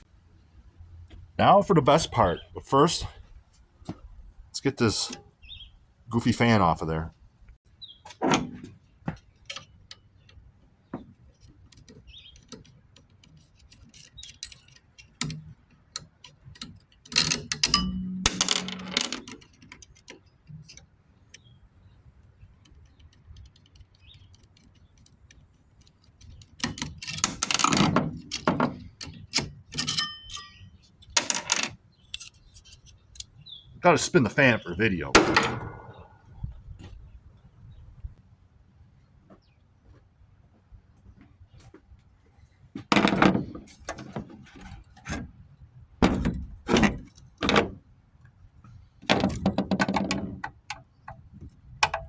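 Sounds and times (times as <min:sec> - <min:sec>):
metal parts clicking and clinking: 0:11.4 - 0:20.9, 0:23.1 - 0:33.3
metal clattering: 0:17.2 - 0:19.4, 0:35.1 - 0:36.4
ringing metallic pings: 0:17.7 - 0:18.9.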